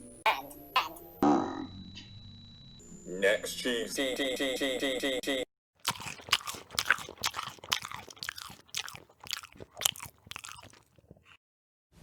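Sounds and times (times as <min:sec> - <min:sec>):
crunchy chewing: 0:05.8 - 0:11.4.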